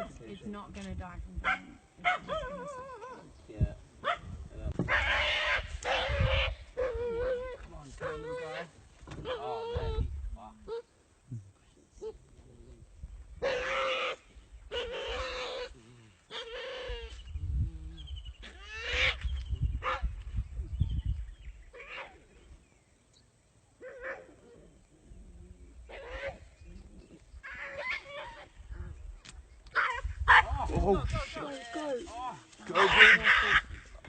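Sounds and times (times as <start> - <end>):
dog yelping in distress: 1.5 - 3.3, 4.9 - 10.1, 13.4 - 17.1, 23.8 - 24.3, 25.9 - 26.4, 27.5 - 28.5, 29.7 - 30.5.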